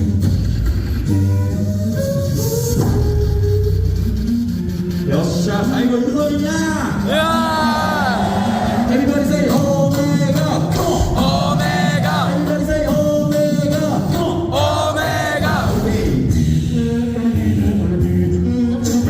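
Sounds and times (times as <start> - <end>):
beatboxed bass line: 0.0 - 19.0
voices singing harmony: 7.0 - 19.0.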